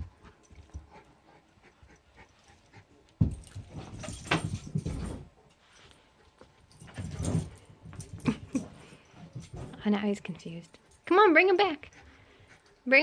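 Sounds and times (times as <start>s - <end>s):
dog bumping and scuffling: 3.2s - 5.4s, 6.4s - 10.9s.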